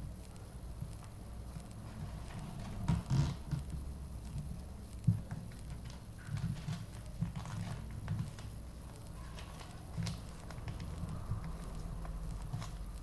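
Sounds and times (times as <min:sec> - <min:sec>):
paper being folded: 0:05.4 - 0:13.0.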